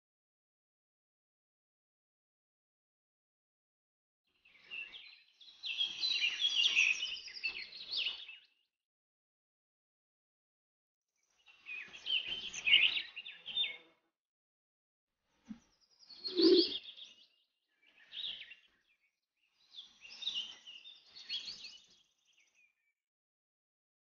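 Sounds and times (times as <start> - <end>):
small birds chirping: 4.4 - 8.7, 11.2 - 14.0, 15.4 - 22.9.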